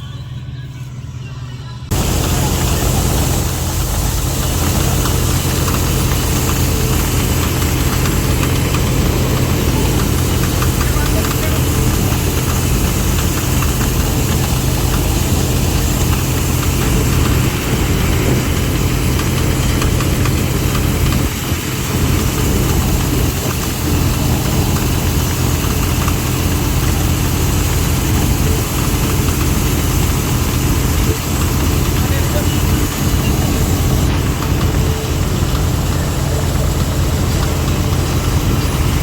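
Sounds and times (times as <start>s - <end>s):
diesel engine running: 0.0s - 39.0s
threshing machinery rattle and hiss: 1.9s - 39.0s.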